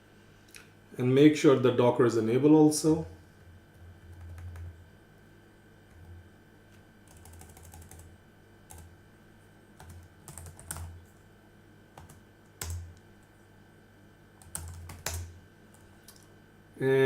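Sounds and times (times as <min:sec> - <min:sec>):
computer keyboard typing: 0:03.7 - 0:04.8, 0:05.9 - 0:06.2, 0:07.0 - 0:08.1, 0:08.7 - 0:08.9, 0:09.8 - 0:11.2, 0:12.0 - 0:13.0, 0:14.4 - 0:16.3.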